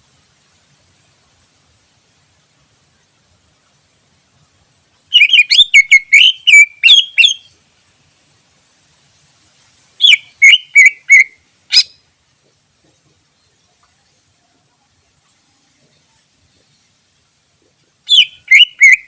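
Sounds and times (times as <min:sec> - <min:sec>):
bird singing whistled notes: 0:05.1 - 0:07.6, 0:10.0 - 0:12.0, 0:18.1 - 0:19.0.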